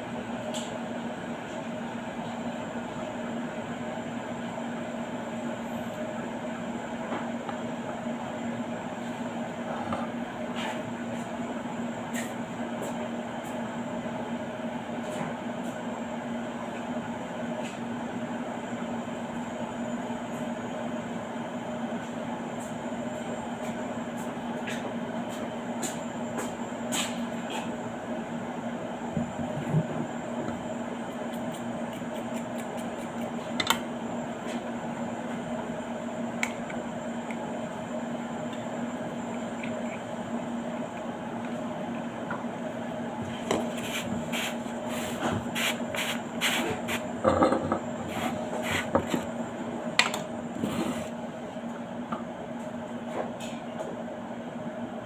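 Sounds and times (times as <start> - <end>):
machine hum: 27.5 - 52.5.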